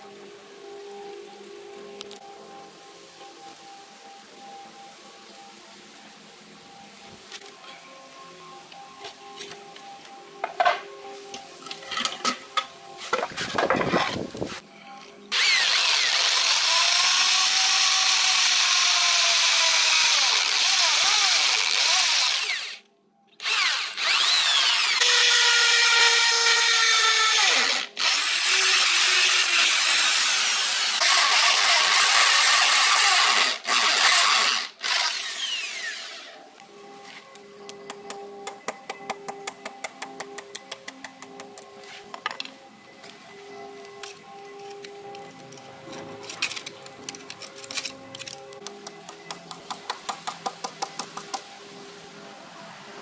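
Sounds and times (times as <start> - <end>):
electric drill boring into brick: 15.3 - 22.8, 23.4 - 36.4
knocks and taps: 48.7 - 51.5.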